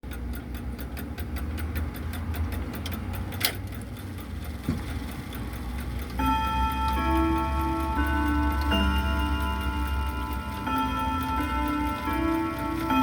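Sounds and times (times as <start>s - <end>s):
grandfather clock ticking: 0.0s - 13.0s
clock chime ringing: 6.0s - 13.0s
low hum: 6.2s - 13.0s.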